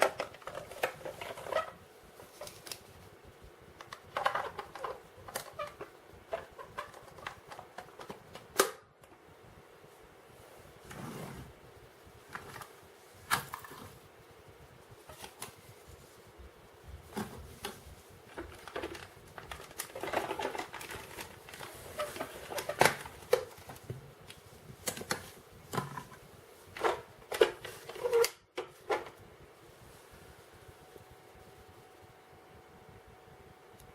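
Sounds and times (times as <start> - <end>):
plastic toy clicking and rattling: 3.8 - 8.2, 18.3 - 23.6.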